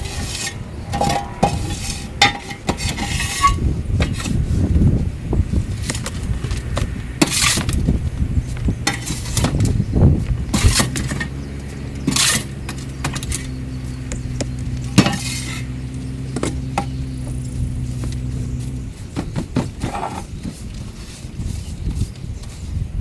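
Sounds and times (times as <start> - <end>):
shovel scraping: 0.0 - 4.7, 5.8 - 13.4, 14.9 - 16.9, 17.9 - 22.8
low motor hum: 0.0 - 23.0.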